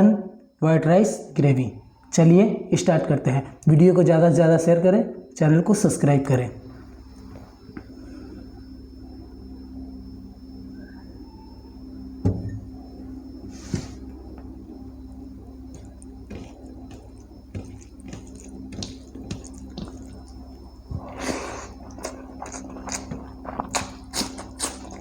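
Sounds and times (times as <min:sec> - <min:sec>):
steady low hum: 0:00.0 - 0:25.0
sharp knock: 0:12.3 - 0:12.6
hands mixing rice wet squishes: 0:15.6 - 0:25.0.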